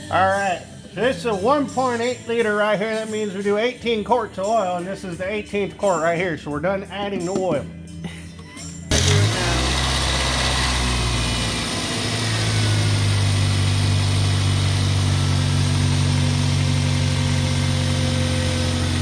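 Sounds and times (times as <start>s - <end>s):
car engine idling: 8.9s - 19.0s.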